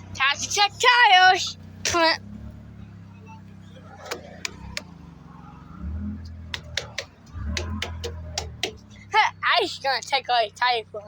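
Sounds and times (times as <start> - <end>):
low engine hum: 0.0 - 11.0
sharp taps and clicks: 4.0 - 4.9, 6.2 - 8.9.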